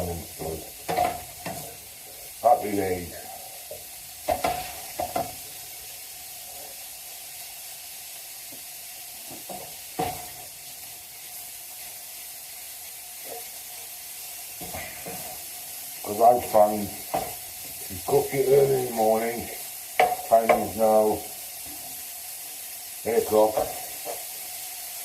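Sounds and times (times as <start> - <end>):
mince sizzling in frying pan: 0.0 - 25.0
utensil knocking against pan: 20.0 - 20.7.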